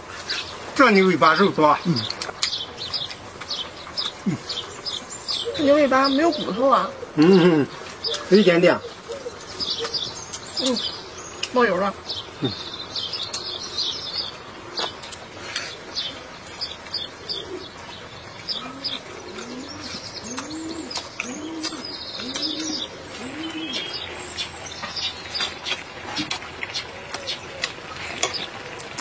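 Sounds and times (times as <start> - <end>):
small birds chirping: 0.0 - 29.0
chewing and lip-smacking: 2.0 - 5.5, 12.4 - 13.6, 14.7 - 15.8, 17.7 - 29.0.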